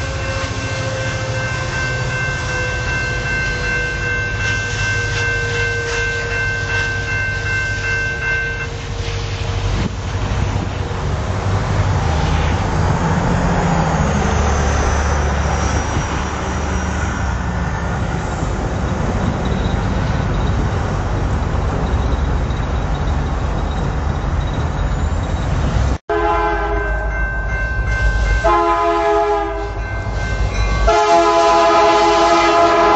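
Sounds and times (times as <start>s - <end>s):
locomotive horn: 0.0s - 7.5s, 26.1s - 27.2s, 28.1s - 30.0s, 30.8s - 32.9s
freight train rumbling past: 0.0s - 32.9s.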